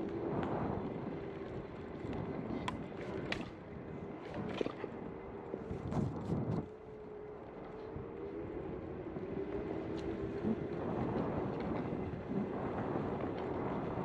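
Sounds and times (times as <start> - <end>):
wind on microphone: 0.0 - 6.9, 8.0 - 14.0
electric scooter motor whine: 0.0 - 14.0
wheels rumbling: 0.0 - 14.0.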